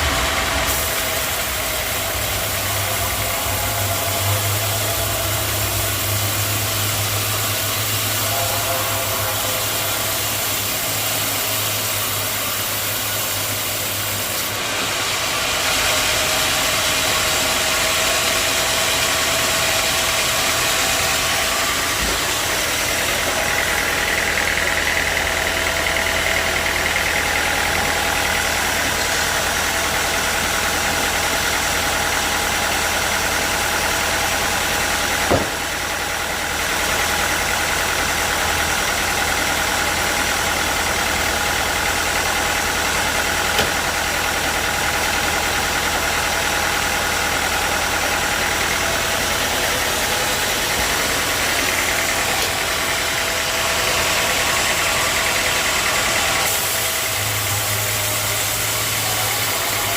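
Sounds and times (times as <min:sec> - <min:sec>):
sawmill machinery running: 0:00.0 - 0:59.9
sharp knock: 0:35.3 - 0:35.6.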